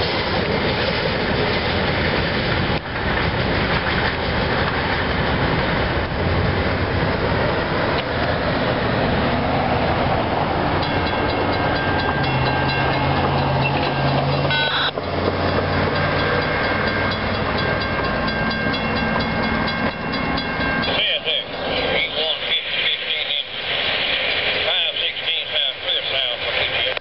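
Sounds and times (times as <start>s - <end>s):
freight cars rolling on rails: 0.0s - 27.0s
crossing signal bell ringing: 10.7s - 22.5s.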